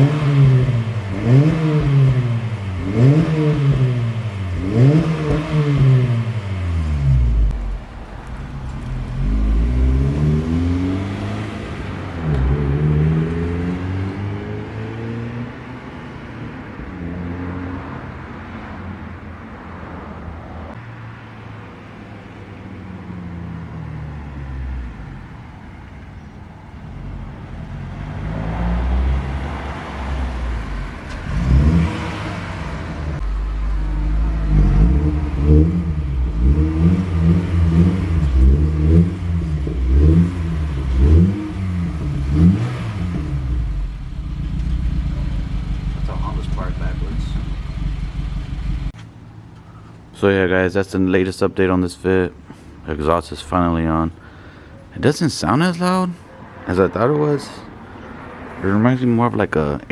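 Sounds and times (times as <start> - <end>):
car engine revving: 0.0 - 16.2, 26.9 - 49.0.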